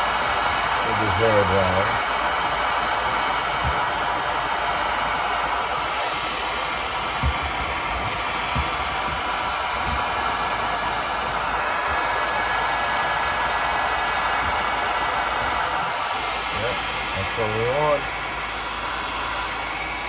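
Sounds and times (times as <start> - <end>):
hair dryer blowing: 0.0 - 20.0
soft low bumps: 7.2 - 10.4.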